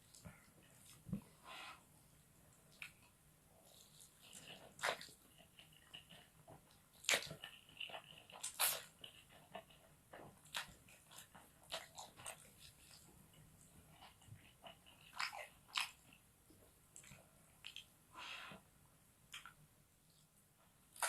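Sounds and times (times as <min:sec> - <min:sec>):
person chewing crunchy noodles: 0:03.7 - 0:13.1, 0:13.9 - 0:16.1.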